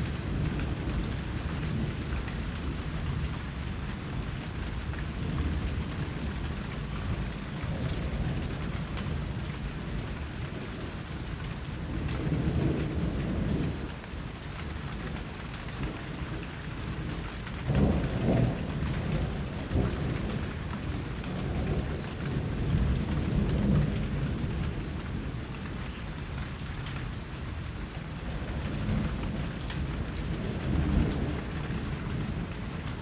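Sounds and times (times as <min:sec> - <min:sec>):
steady rain: 0:00.0 - 0:33.0
low thunder rolling: 0:04.8 - 0:10.8, 0:15.8 - 0:25.6, 0:28.0 - 0:33.0.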